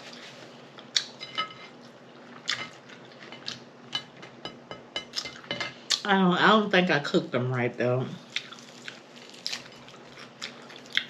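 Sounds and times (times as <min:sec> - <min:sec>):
wet chewing and lip-smacking: 0:08.3 - 0:11.0.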